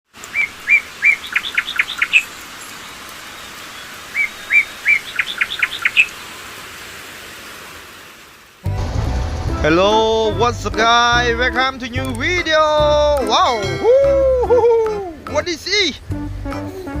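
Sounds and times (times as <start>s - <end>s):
songbird singing: 0.2s - 6.4s
steady hiss: 0.2s - 13.6s.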